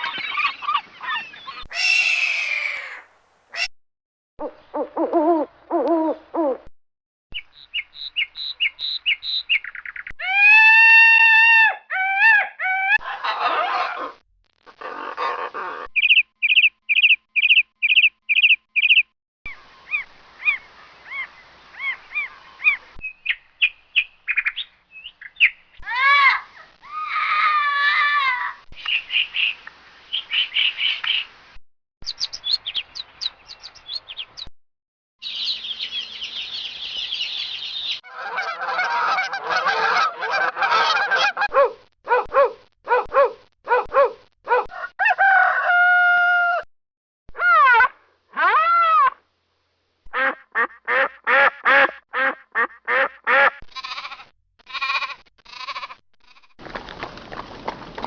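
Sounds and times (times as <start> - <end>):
gliding whistled bird calls: 7.4 - 10.1, 16.0 - 19.0.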